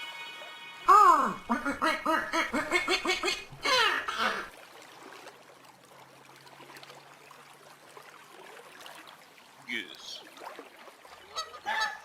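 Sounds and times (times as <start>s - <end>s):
duck quacking: 0.9s - 4.5s, 11.1s - 12.0s.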